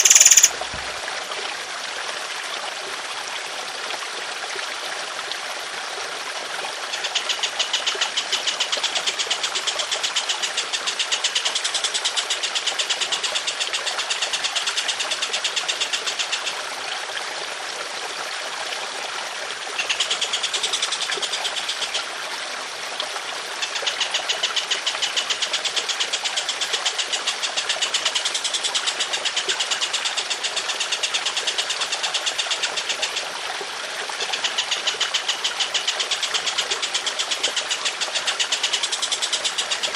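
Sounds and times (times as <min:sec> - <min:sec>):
songbird rapid trills: 0:00.0 - 0:01.0, 0:19.8 - 0:22.0, 0:23.6 - 0:33.2, 0:34.2 - 0:39.9
trickling water: 0:00.0 - 0:39.9.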